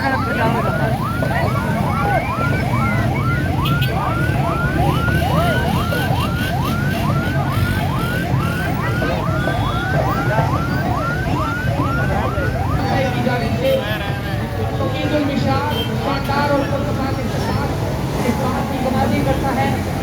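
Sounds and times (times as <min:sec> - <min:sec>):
vehicle siren whooping: 0:00.0 - 0:13.7
crowd noise: 0:00.0 - 0:20.0
low rumble of engines: 0:00.0 - 0:20.0.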